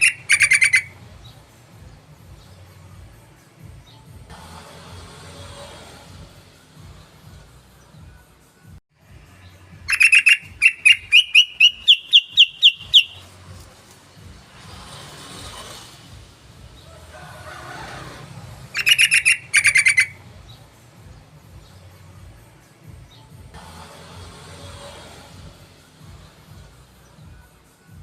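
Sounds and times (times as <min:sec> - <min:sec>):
bird chattering call: 0:00.0 - 0:00.9, 0:09.9 - 0:13.3, 0:18.7 - 0:20.2.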